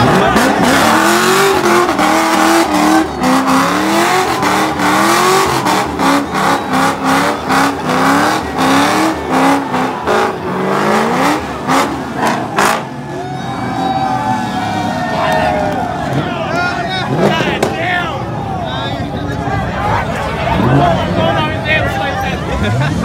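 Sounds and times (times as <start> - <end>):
car engine revving hard: 0.0 - 13.1, 20.4 - 21.4.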